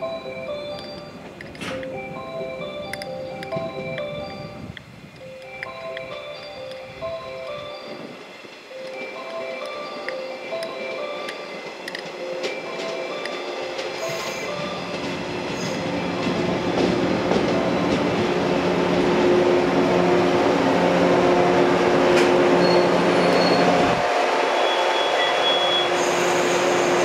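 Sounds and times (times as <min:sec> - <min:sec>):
train traction motors humming: 0:00.0 - 0:27.0
wheels squealing on rails: 0:05.7 - 0:18.4, 0:21.7 - 0:27.0.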